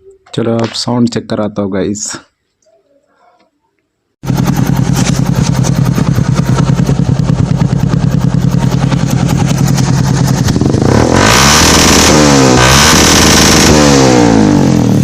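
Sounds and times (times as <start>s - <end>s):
motorcycle engine running loud: 4.2s - 15.0s.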